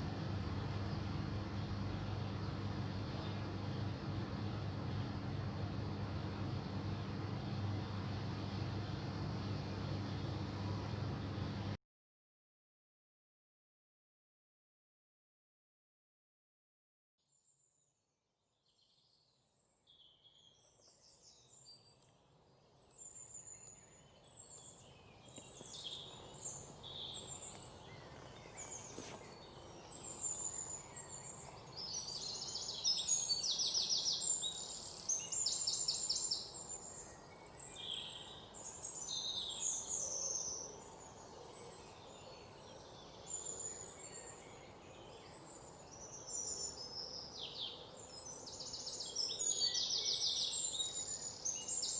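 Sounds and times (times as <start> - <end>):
steady background hiss: 0.0 - 11.8, 21.0 - 51.9
songbirds chirping and singing: 22.7 - 51.9.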